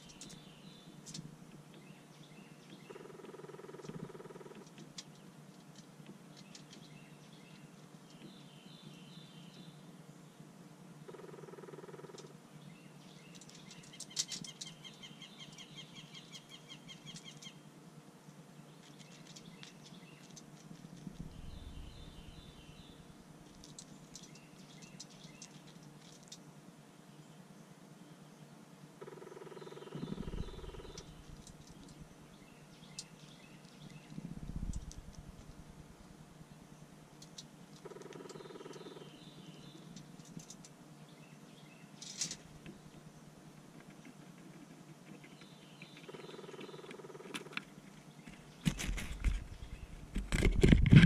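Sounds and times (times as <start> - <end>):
faint songbirds singing: 0.0 - 51.0
bird trill: 29.0 - 34.2.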